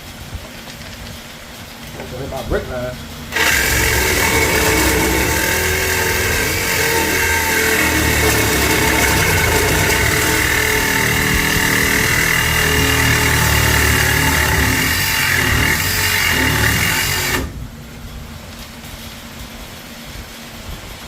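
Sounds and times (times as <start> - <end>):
angle grinder cutting metal: 3.2 - 17.6.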